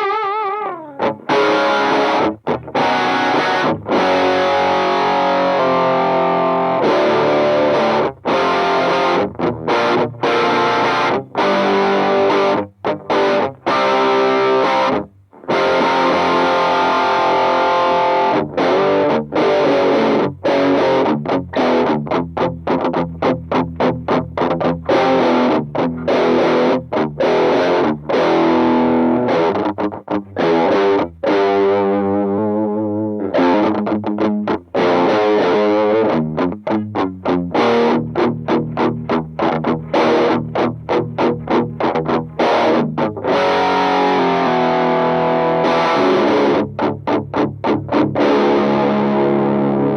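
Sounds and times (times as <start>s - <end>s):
distorted electric guitar riffs: 0.0s - 49.9s.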